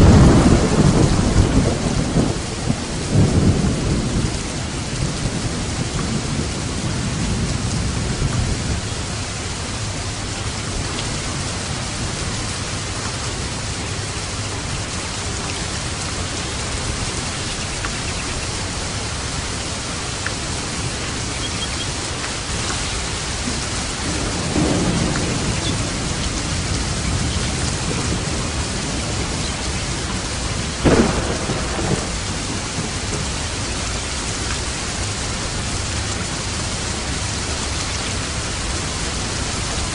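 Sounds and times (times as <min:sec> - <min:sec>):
steady rain falling: 0:00.0 - 0:39.9
thunder rumbling: 0:00.0 - 0:39.9
sharp thunder crack: 0:23.4 - 0:29.7, 0:30.8 - 0:33.3.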